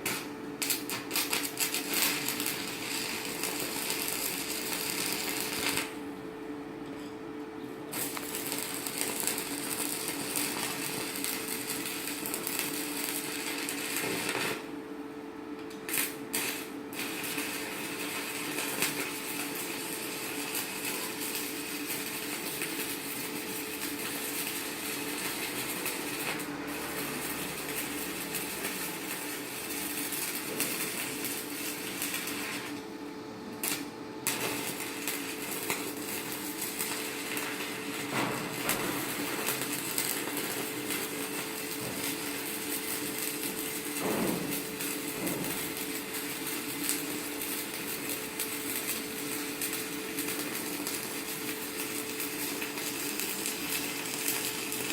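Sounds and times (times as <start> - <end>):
welding arc crackling and sizzling: 0.0 - 6.2, 7.9 - 54.9.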